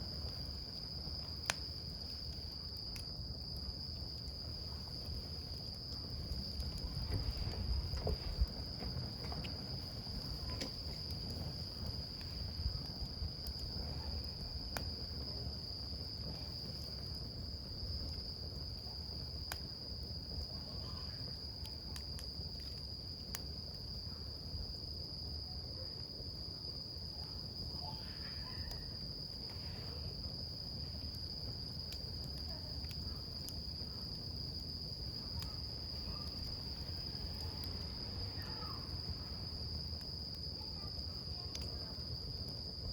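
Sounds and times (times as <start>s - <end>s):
campfire crackling and popping: 0.0s - 42.9s
low rumble of flame: 0.0s - 42.9s
high-pitched insect chorus: 33.2s - 42.9s.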